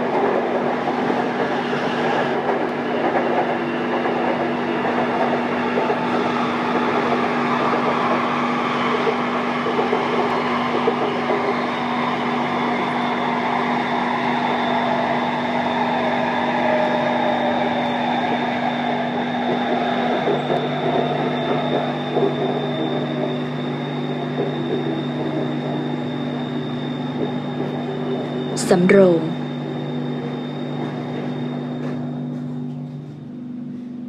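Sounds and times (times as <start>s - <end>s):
metro train rolling rumble: 0.0s - 34.0s
thin high whine: 20.6s - 34.0s.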